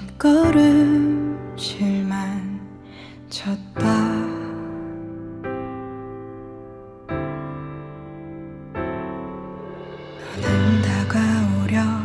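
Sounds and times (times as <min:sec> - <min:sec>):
person singing a ballad: 0:00.0 - 0:05.6, 0:09.5 - 0:12.0
piano chords: 0:00.0 - 0:12.0.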